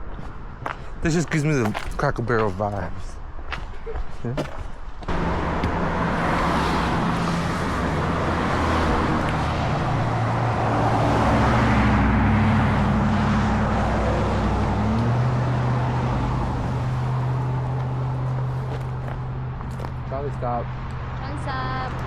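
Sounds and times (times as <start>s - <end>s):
road traffic noise: 0.0s - 22.0s
vehicle engine running: 5.1s - 20.0s.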